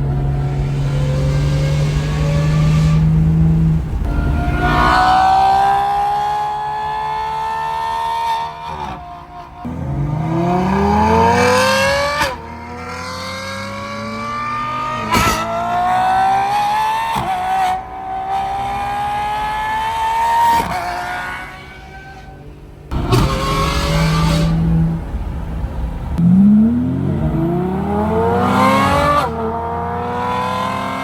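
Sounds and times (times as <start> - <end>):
sports car engine accelerating: 0.0 - 31.0.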